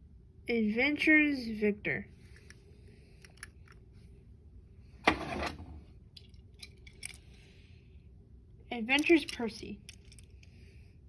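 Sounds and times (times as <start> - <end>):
toy trains clicking and knocking: 8.9 - 10.4.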